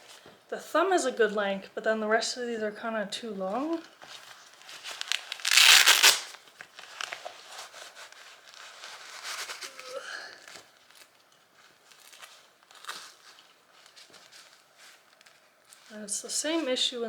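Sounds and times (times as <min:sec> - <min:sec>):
gloves rustling and crinkling: 0:03.0 - 0:17.0
loud rasping rip: 0:05.4 - 0:06.4.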